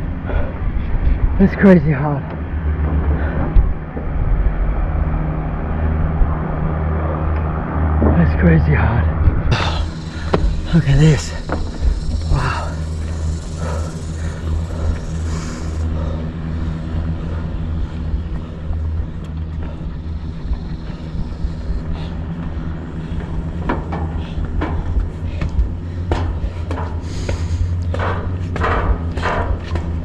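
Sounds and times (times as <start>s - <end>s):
low rumble on microphone: 2.2s - 30.0s.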